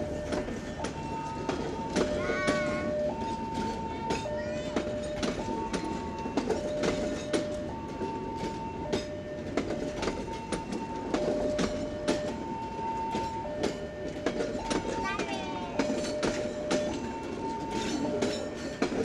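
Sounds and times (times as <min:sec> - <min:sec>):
train wheels clicking over rail joints: 0:00.0 - 0:19.0
two-tone warning signal: 0:00.0 - 0:19.0.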